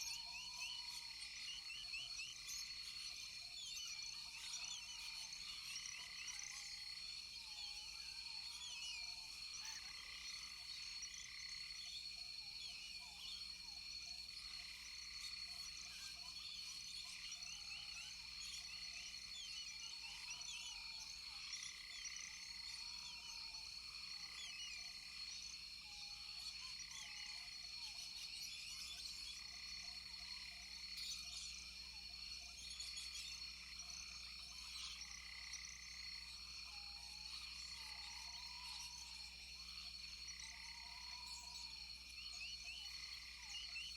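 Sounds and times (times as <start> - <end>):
high-pitched insect drone: 0.1 - 43.9.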